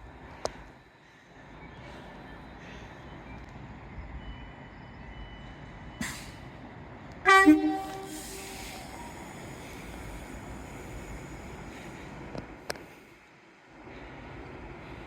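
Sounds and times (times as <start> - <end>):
train rumbling: 0.0 - 15.0
train horn two-tone blast: 7.2 - 8.6.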